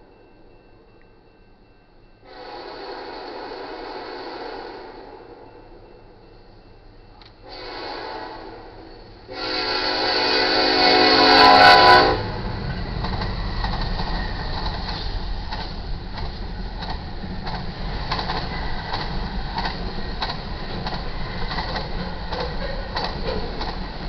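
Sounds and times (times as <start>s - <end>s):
freight train rumbling past: 0.0s - 24.0s
train horn: 2.2s - 5.4s, 7.4s - 12.5s
wheel clicks over rail joints: 13.0s - 24.0s.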